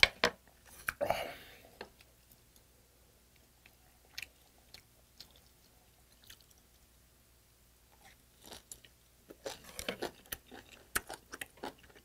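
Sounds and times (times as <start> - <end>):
person biting and chewing: 8.0 - 12.0.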